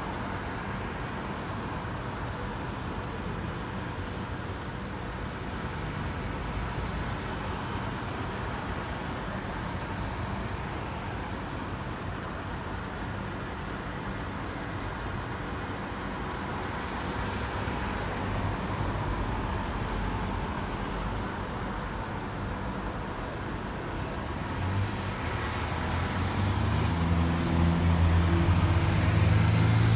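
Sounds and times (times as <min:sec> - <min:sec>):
road traffic rumble: 0:16.4 - 0:29.9.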